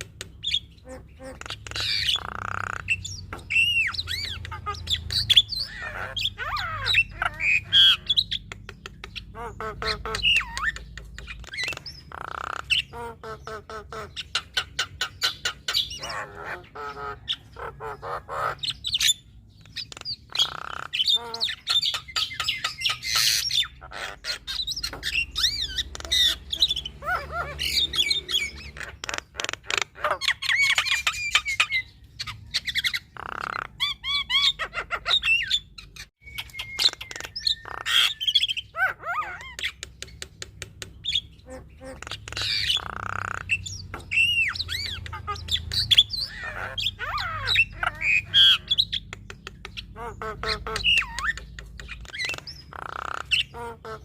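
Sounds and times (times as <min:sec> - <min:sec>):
bird singing varied song: 0:00.0 - 0:54.0.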